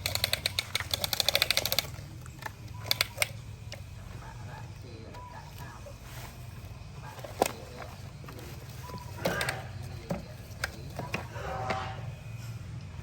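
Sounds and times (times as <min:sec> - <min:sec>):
rustling: 0:04.5 - 0:12.2.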